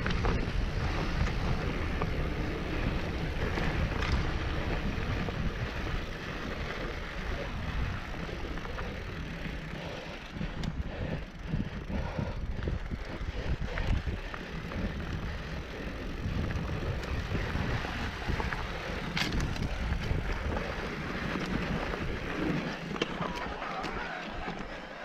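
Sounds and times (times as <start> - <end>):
wind buffeting microphone: 0.0 - 24.7
mountain bike rolling on dirt: 0.0 - 25.0
rattles and clicks: 16.2 - 20.6.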